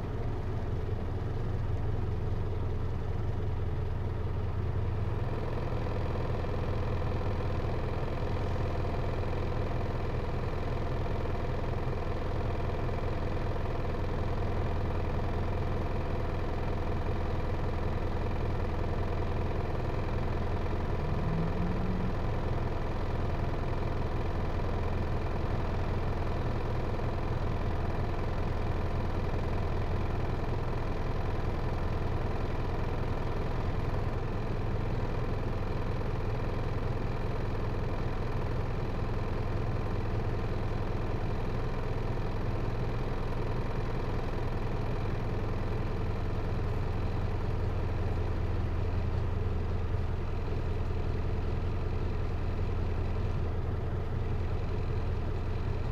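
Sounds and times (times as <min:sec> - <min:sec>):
diesel engine humming: 0:18.1 - 0:25.3.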